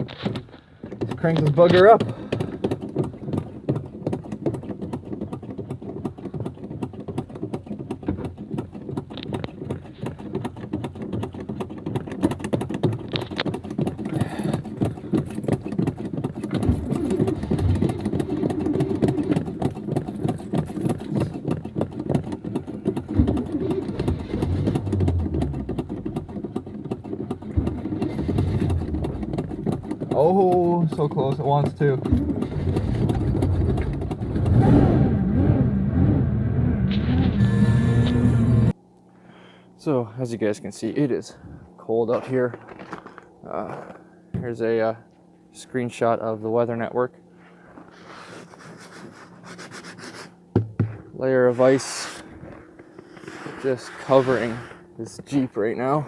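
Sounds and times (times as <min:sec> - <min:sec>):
starter motor cranking engine: 0:00.0 - 0:38.8.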